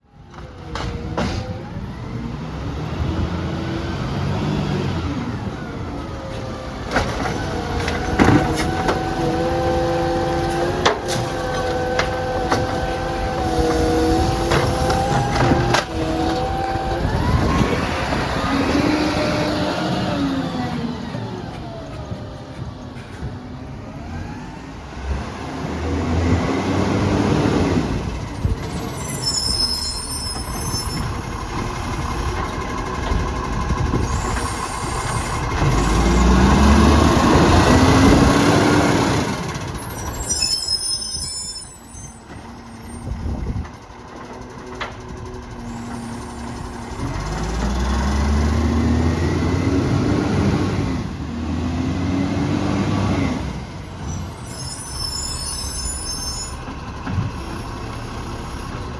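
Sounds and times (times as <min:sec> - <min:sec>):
garbage truck engine revving: 0:00.3 - 0:40.6, 0:42.3 - 0:55.9
air hissing with squeals: 0:28.7 - 0:31.3, 0:34.0 - 0:36.0, 0:39.8 - 0:43.2, 0:54.0 - 0:56.7.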